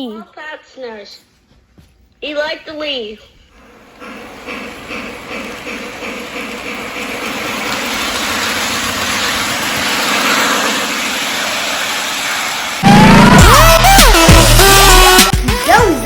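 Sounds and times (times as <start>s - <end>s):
toy train steam chuffing: 3.6s - 15.2s
toy train wheels rumbling: 3.6s - 15.2s.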